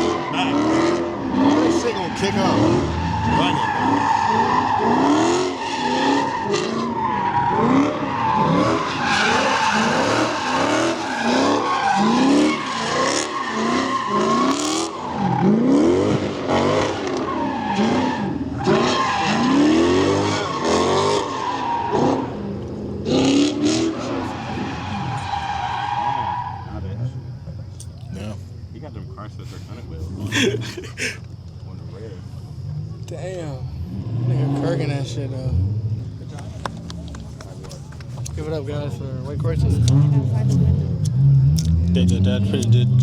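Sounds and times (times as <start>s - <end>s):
tyres squealing: 0.0s - 15.6s, 17.0s - 22.4s, 23.6s - 27.0s
car engine revving: 0.0s - 27.5s, 32.6s - 43.0s.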